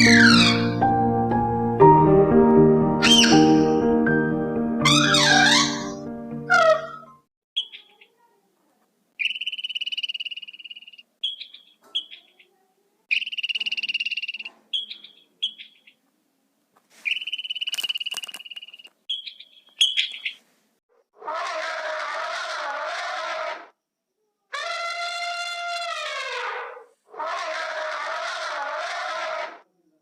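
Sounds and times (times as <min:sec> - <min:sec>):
frog trilling: 0:09.2 - 0:12.2, 0:13.1 - 0:15.8, 0:17.1 - 0:20.2
frog chirps: 0:09.2 - 0:12.4, 0:13.1 - 0:16.0, 0:17.1 - 0:20.4.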